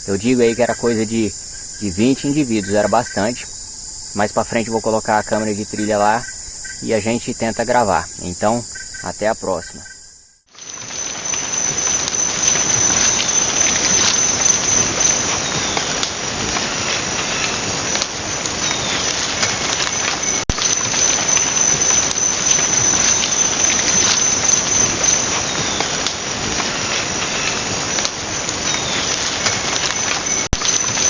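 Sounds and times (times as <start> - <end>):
dense rainforest hiss: 0.0 - 31.0
high insect whine: 0.0 - 31.0
small ticks: 11.8 - 31.0.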